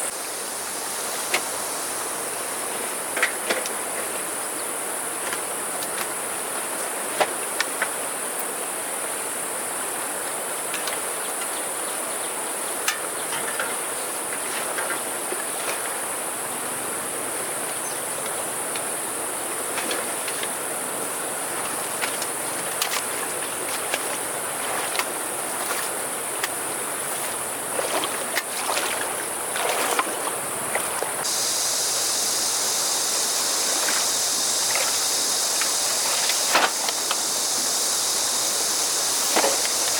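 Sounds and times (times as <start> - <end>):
broad hiss: 0.0 - 3.2, 30.4 - 39.9
insects droning: 0.0 - 39.9.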